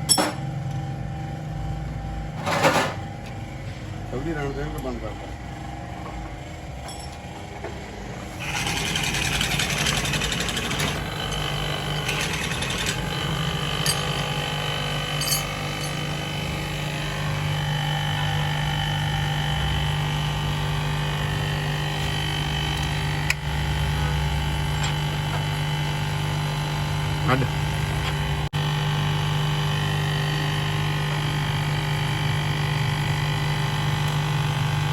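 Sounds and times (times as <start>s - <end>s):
motor humming: 7.8s - 28.5s.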